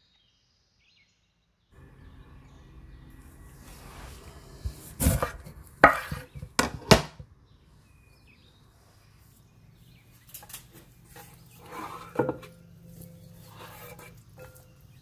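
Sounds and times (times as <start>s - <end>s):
knife chopping on cutting board: 5.0s - 7.2s.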